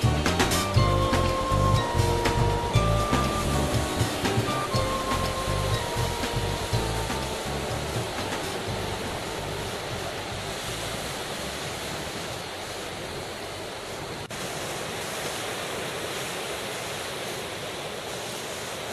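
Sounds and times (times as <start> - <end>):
wind rumble on microphone: 0.0 - 14.2
ocean surf on sandy beach: 0.0 - 18.9.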